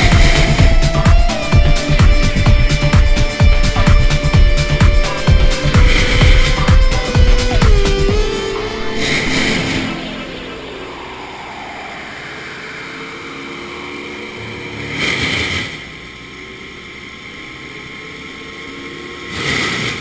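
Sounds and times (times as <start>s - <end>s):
rushing surges: 0.0s - 16.1s
machine engine running: 0.0s - 20.0s.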